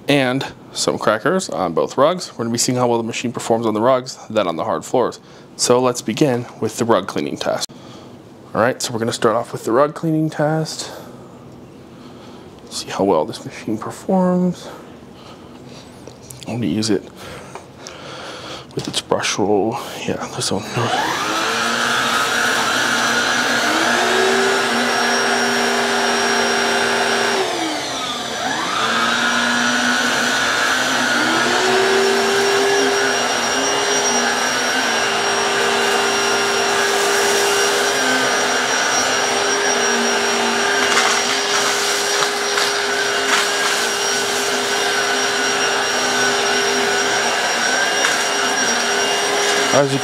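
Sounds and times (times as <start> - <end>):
stick vacuum running: 20.7 - 50.0.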